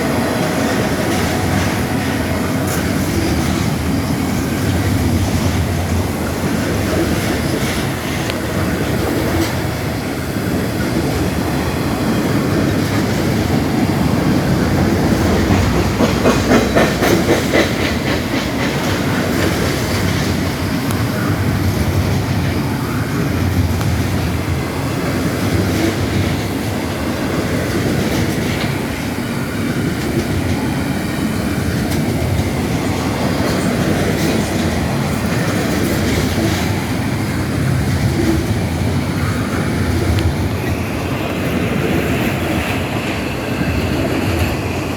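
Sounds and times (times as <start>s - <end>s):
freight train wheels rumbling on rail: 0.0s - 44.9s.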